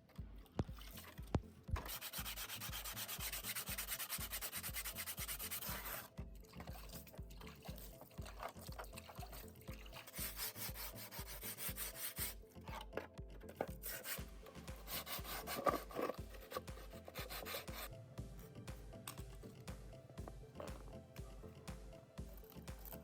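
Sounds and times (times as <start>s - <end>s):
music with steady bass beat: 0.0s - 23.0s
abrasive rubbing strokes: 1.7s - 7.1s, 9.0s - 12.6s, 13.6s - 21.7s.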